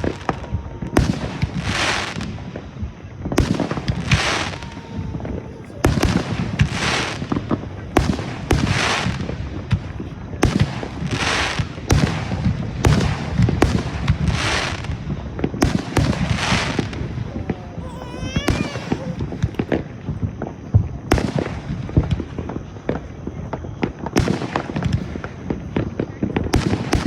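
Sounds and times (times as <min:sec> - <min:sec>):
warbling firework whistle: 0:00.0 - 0:02.4
fireworks bangs and crackle: 0:00.0 - 0:27.0.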